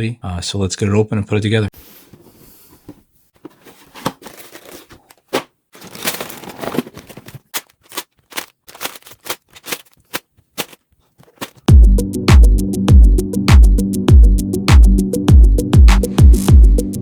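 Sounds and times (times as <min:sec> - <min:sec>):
packaging crinkling and tearing: 0:04.0 - 0:11.7.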